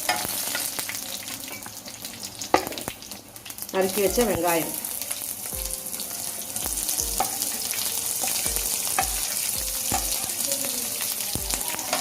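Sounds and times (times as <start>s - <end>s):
onions sizzling in a pan: 0.0s - 12.0s
spatula knocking and scraping pan: 7.2s - 10.4s.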